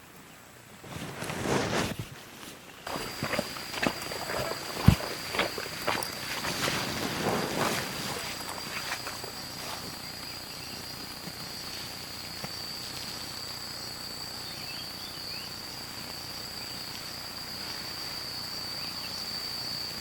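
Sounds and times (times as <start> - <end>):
insects trilling: 2.8 - 20.0.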